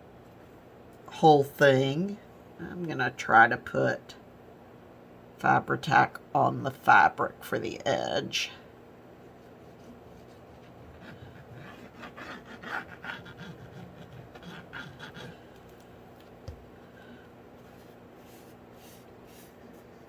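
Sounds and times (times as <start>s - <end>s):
hands working across fabric: 17.6s - 20.0s.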